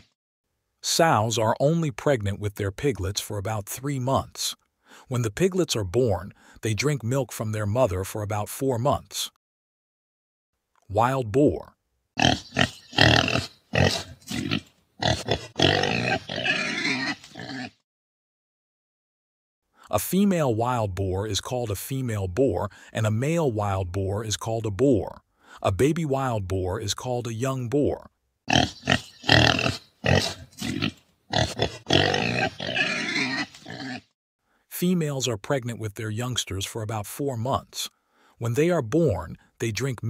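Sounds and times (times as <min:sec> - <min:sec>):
wild boar grunting: 0:12.2 - 0:17.8, 0:28.5 - 0:34.1.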